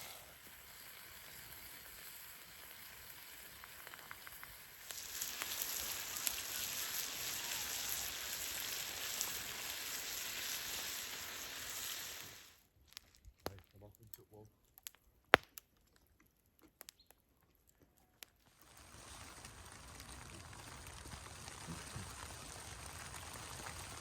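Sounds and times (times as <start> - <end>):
food sizzling in a frying pan: 0.0 - 12.6, 18.6 - 24.0.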